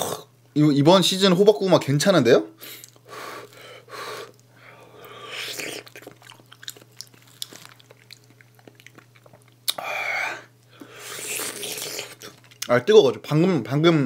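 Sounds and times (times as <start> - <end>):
wet chewing of mango: 4.2 - 9.9, 10.8 - 12.7.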